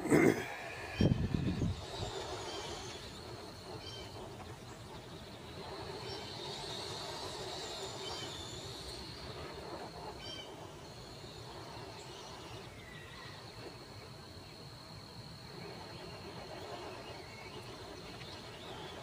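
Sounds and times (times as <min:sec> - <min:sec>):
high-pitched insect drone: 0:00.1 - 0:19.0
bird chirp: 0:00.5 - 0:14.7, 0:15.5 - 0:19.0.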